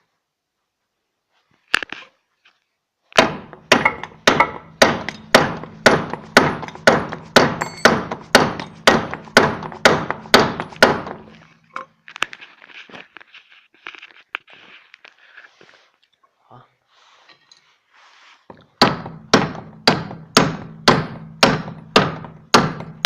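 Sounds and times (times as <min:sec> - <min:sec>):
hammer striking metal: 0:03.2 - 0:11.3, 0:18.8 - 0:23.0
metal parts scraping and handling: 0:11.3 - 0:16.0, 0:17.2 - 0:17.9.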